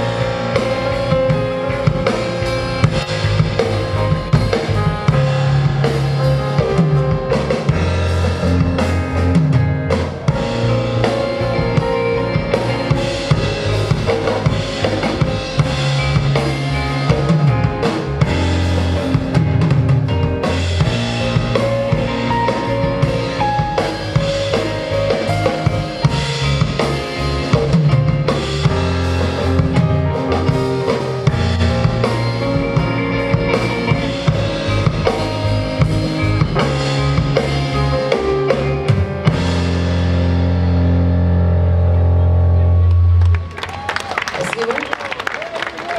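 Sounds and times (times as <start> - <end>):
drum kit beat: 0.0 - 41.2
rock band playing: 0.0 - 45.9.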